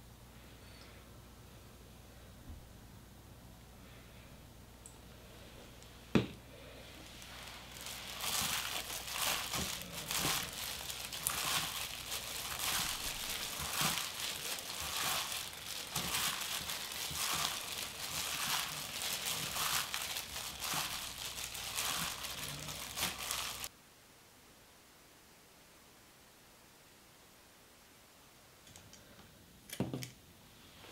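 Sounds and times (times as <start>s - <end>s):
plastic gloves crinkling: 6.1s - 23.7s.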